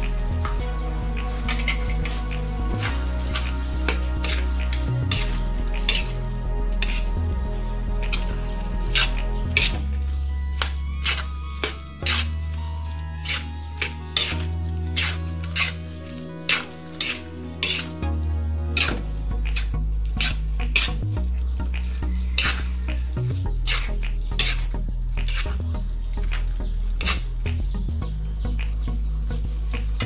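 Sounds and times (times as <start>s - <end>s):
background music with bass: 0.0s - 30.0s
food sizzling in a wok: 1.3s - 7.1s, 7.9s - 21.0s, 22.0s - 25.5s.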